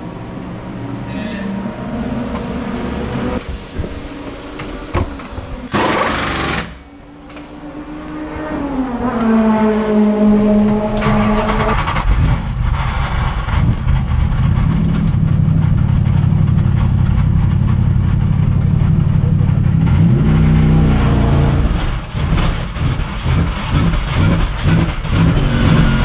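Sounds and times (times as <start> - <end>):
loud rush of noise: 0.0 - 9.0, 9.7 - 26.0
car engine idling: 10.3 - 26.0.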